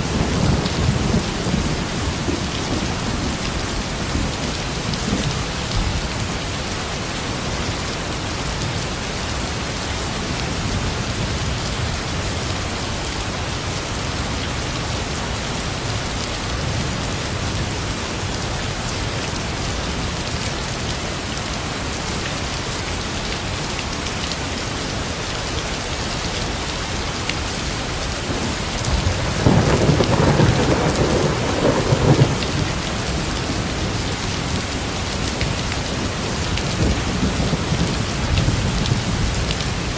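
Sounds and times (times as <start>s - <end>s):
steady rain falling: 0.0s - 39.9s
thunder rumbling: 28.3s - 34.7s.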